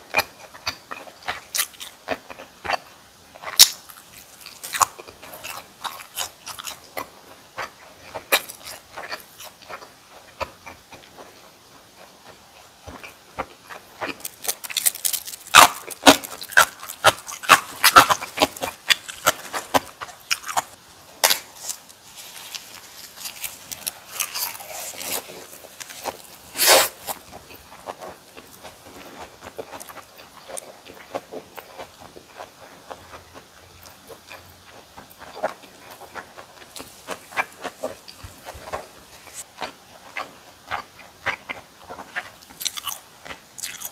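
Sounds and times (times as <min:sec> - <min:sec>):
chewing crunchy food: 0:00.0 - 0:43.9.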